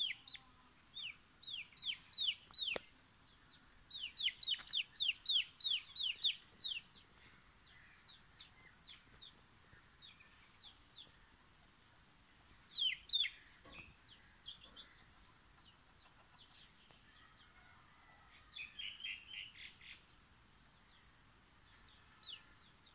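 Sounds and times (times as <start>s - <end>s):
chick peeping: 0.0s - 7.2s, 12.7s - 17.8s.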